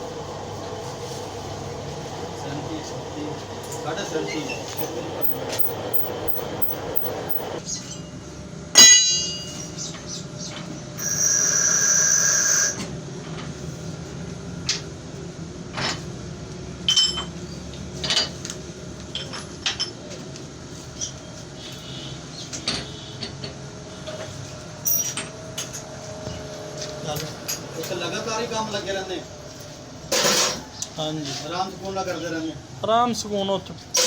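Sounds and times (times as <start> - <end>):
metalworking machine humming: 0.0 - 7.6
high-pitched metal squeal: 11.0 - 12.9.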